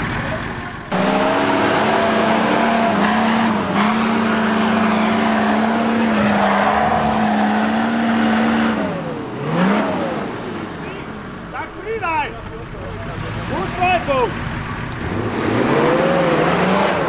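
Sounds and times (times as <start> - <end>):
engine revving hard: 0.9 - 10.3, 15.0 - 17.0.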